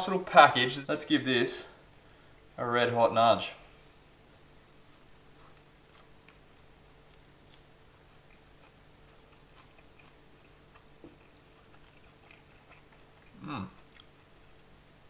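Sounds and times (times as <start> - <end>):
low steady hum: 0.0 - 15.0
faint chewing: 4.3 - 15.0.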